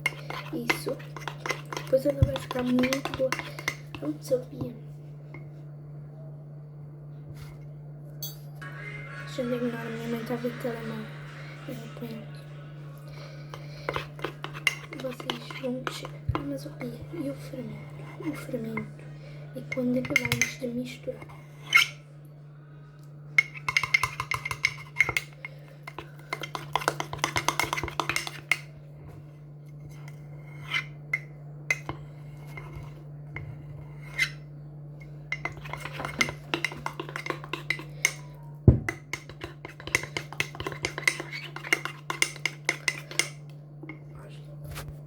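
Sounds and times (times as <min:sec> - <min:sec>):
spoon clinking and scraping in mug: 0:00.0 - 0:04.1, 0:13.5 - 0:16.4, 0:19.7 - 0:22.0, 0:23.4 - 0:28.7, 0:29.8 - 0:34.5, 0:35.3 - 0:43.4
steady low hum: 0:00.0 - 0:45.0
spoon knocking on mug: 0:23.4 - 0:28.7, 0:35.4 - 0:43.4.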